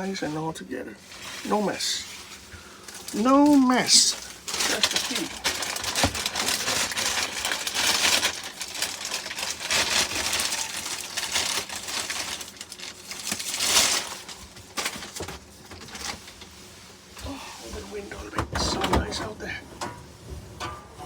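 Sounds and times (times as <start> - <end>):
paper crinkling and rustling: 1.1 - 17.2.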